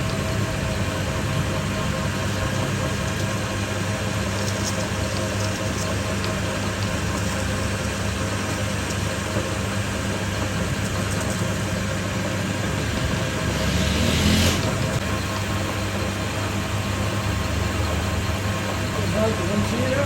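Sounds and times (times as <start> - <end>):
machine humming: 0.0 - 20.0
loud rushing noise: 12.5 - 15.0.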